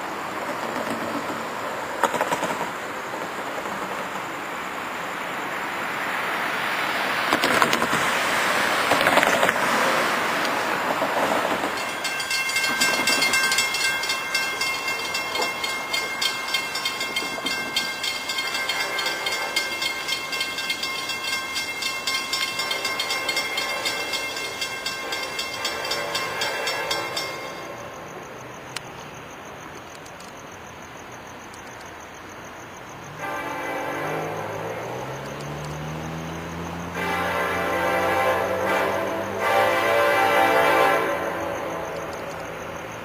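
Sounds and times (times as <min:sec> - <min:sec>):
train wheels clicking over rails: 0:00.0 - 0:30.4, 0:37.0 - 0:43.0
high ringing tones: 0:11.6 - 0:28.6.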